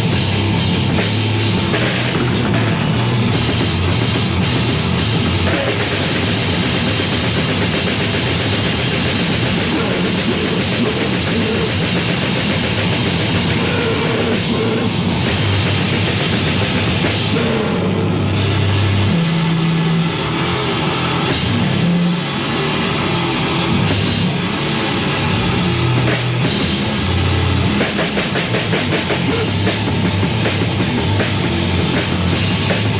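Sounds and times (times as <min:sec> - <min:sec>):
heavy metal band music: 0:00.0 - 0:32.9.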